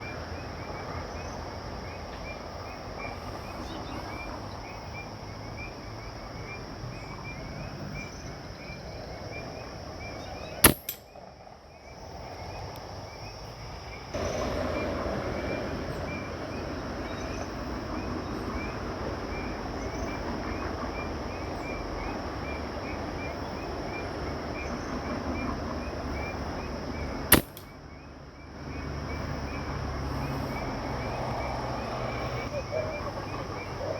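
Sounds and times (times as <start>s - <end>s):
steady chirping: 10.1s - 11.1s
air rifle shots: 10.6s - 11.0s, 27.3s - 27.7s.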